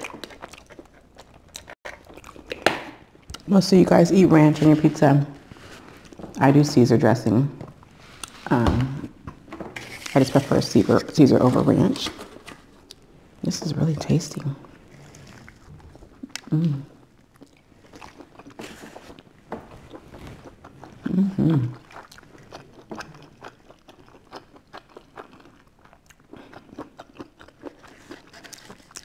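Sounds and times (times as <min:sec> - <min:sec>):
crunchy chewing of pizza: 0:00.0 - 0:03.5, 0:14.0 - 0:29.0
person humming: 0:16.4 - 0:16.9, 0:21.1 - 0:21.8.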